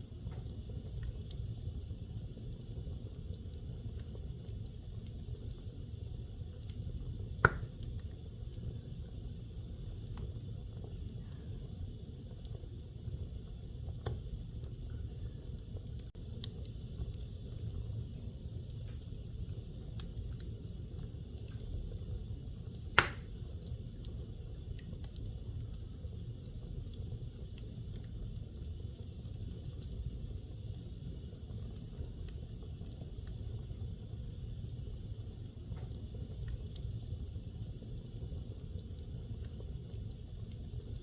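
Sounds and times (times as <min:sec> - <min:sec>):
fire crackling: 0:00.0 - 0:41.0
fireplace fire rumbling: 0:00.0 - 0:41.0
loud pop from fire: 0:07.4 - 0:08.1, 0:22.9 - 0:23.5.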